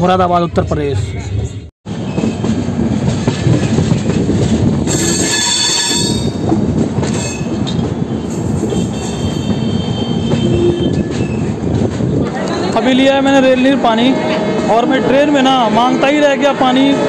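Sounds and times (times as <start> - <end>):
train wheels rumbling on rails: 1.9 - 17.0
high-pitched wheel squeals: 4.9 - 6.4.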